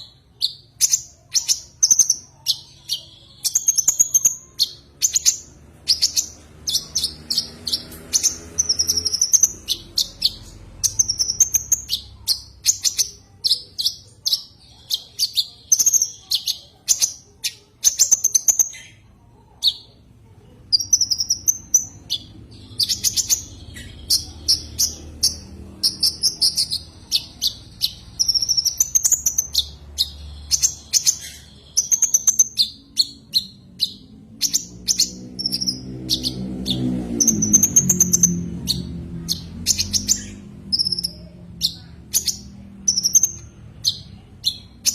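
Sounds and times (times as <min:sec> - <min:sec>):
sunbird chirping and trilling: 0:00.0 - 0:44.9.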